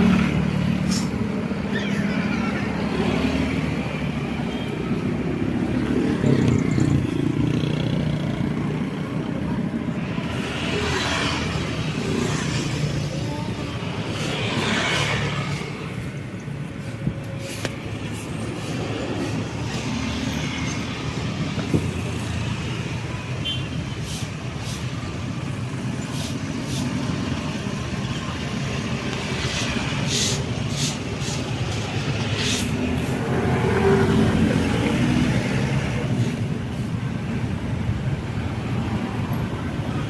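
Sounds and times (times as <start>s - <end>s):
road traffic rumble: 0.0s - 40.0s.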